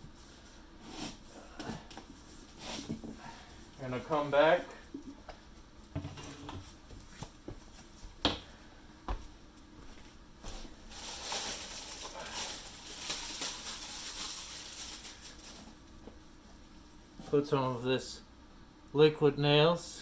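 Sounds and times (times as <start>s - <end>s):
scraping and rustling: 10.4s - 15.9s.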